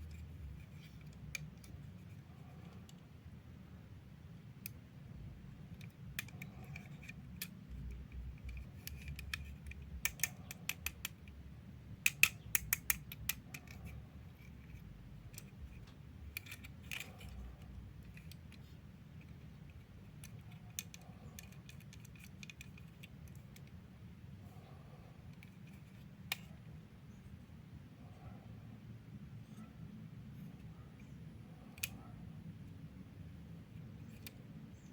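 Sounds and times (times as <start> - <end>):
low steady hum: 0.0 - 34.9
plastic parts clicking and rattling: 5.5 - 11.4, 12.0 - 23.8.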